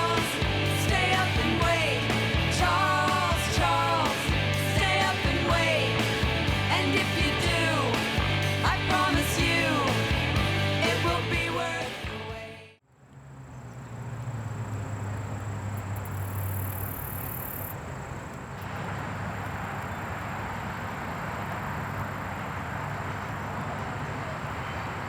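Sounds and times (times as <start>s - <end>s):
low hum: 0.0s - 12.6s
music: 0.0s - 12.8s
outdoor background noise: 0.0s - 25.0s.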